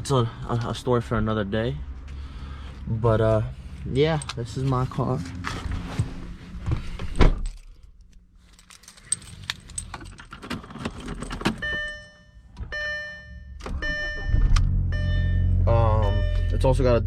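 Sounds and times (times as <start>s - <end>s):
car keys jangling: 3.7s - 4.9s, 7.3s - 12.2s
electronic warning chime: 11.6s - 17.0s.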